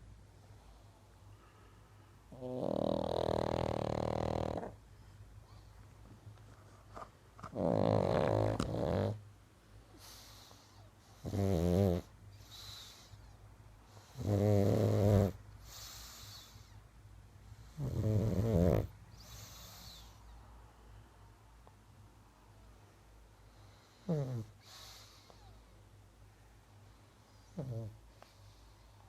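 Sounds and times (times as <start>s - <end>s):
dog snoring: 2.3s - 4.8s, 7.5s - 9.2s, 10.0s - 13.2s, 13.9s - 16.8s, 17.5s - 20.2s, 23.5s - 25.6s, 27.4s - 28.6s.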